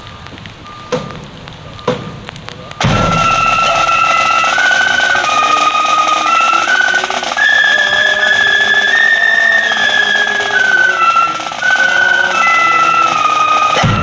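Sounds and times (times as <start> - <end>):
flute band playing slow melody: 2.8 - 14.0.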